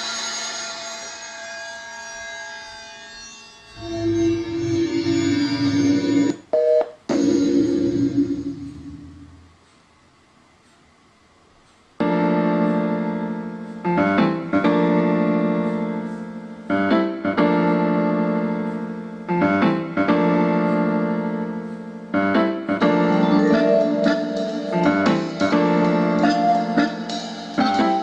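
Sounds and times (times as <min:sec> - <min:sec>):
piano slow sustained chords: 0:07.1 - 0:09.6, 0:12.0 - 0:28.0.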